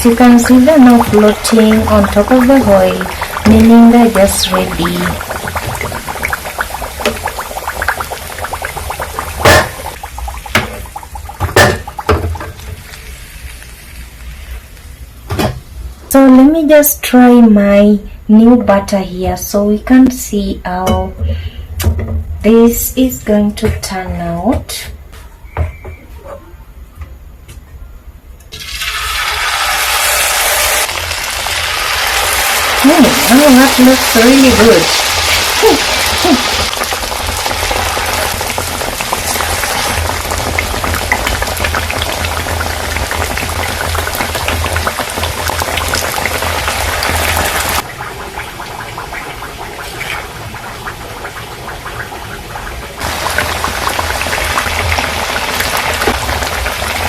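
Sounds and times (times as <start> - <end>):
fritters sizzling in hot oil: 0.0 - 15.1, 28.6 - 57.0.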